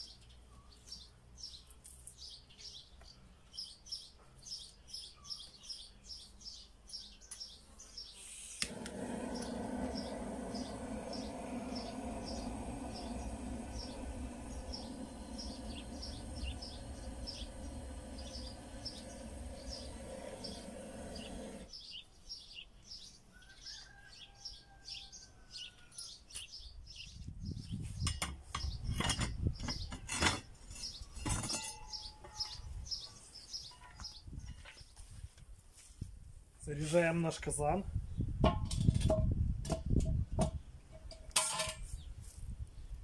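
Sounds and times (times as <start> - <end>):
steady low hum: 8.6 - 21.7
small bird chirping: 9.2 - 24.0.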